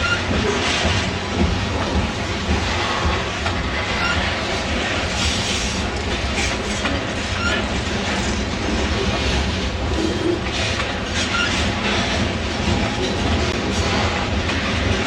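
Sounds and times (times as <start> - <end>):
freight train rumbling past: 0.0 - 15.0
high wheel squeaks: 3.9 - 4.4, 7.3 - 7.8, 11.2 - 11.8.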